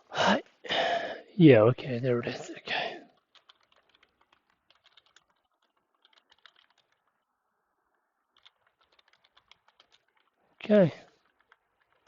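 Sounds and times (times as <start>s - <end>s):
computer keyboard typing: 3.1s - 7.3s, 8.2s - 12.0s.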